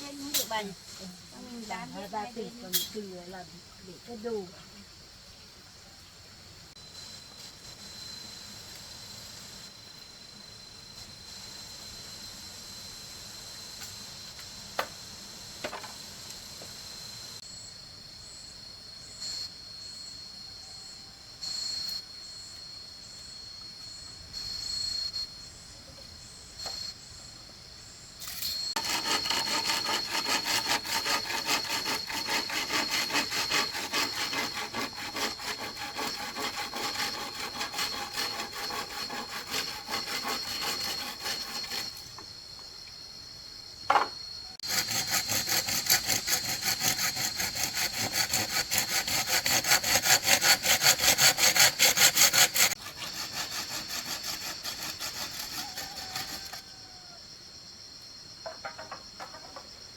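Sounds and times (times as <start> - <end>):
high insect drone: 0.0 - 59.9
hand saw cutting wood: 28.3 - 42.1, 44.6 - 56.6.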